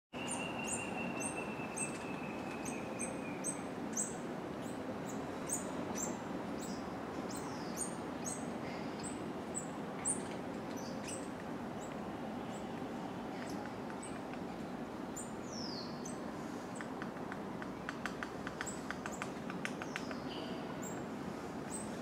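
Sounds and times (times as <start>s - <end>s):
bird high-pitched calls: 0.2s - 4.8s.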